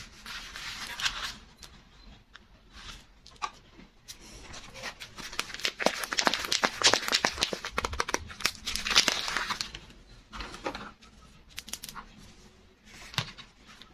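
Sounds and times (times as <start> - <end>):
packaging crinkling: 5.0 - 9.8.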